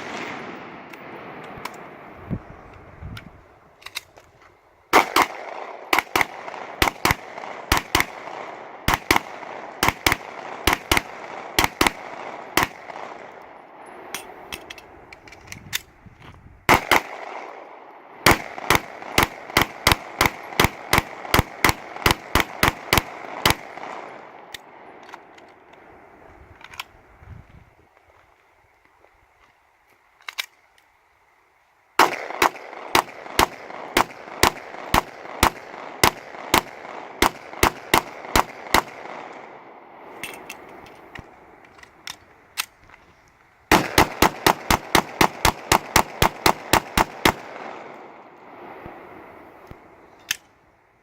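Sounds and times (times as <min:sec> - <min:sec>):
rifle gunshots: 0:00.0 - 0:02.2, 0:04.9 - 0:13.4, 0:16.7 - 0:24.9, 0:32.0 - 0:40.2, 0:43.7 - 0:48.2
pistol gunshots: 0:04.9 - 0:13.4, 0:16.7 - 0:25.3, 0:32.0 - 0:40.5, 0:43.7 - 0:48.2.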